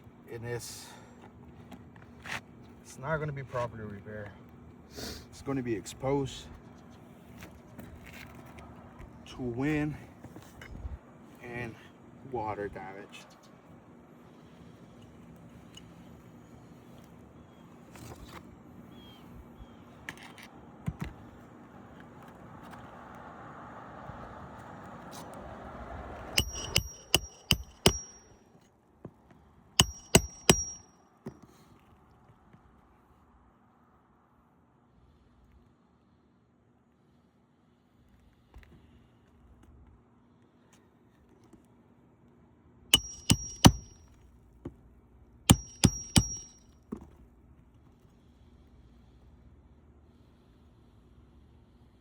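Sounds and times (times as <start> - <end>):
hammer striking roofing nails: 26.4 - 28.2, 29.8 - 30.8, 43.0 - 44.0, 45.5 - 46.6.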